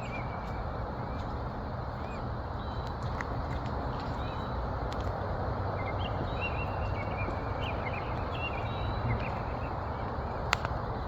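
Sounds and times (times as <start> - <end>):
birds chirping faintly: 5.6 - 10.7.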